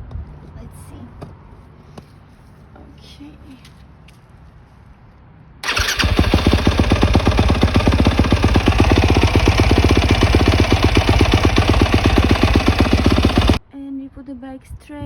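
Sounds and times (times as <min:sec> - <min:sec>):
dirt bike engine idling: 0:05.6 - 0:13.6.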